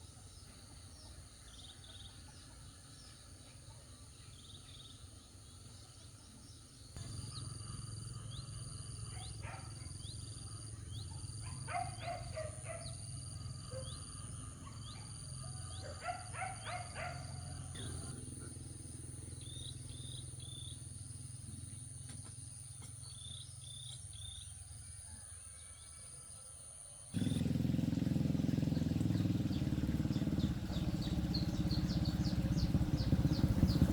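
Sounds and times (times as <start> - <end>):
bird chirps: 0.3 - 24.6, 27.2 - 33.9
loud engine running: 27.2 - 33.9.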